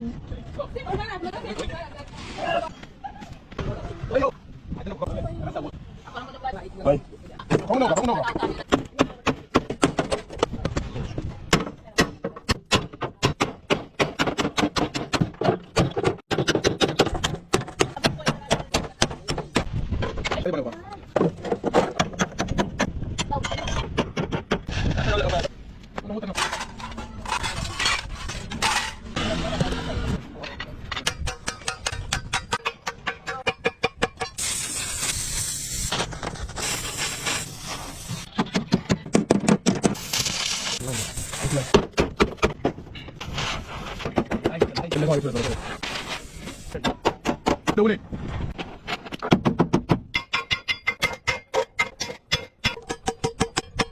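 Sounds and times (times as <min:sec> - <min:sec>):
loud hissing air jet: 0:34.4 - 0:38.3.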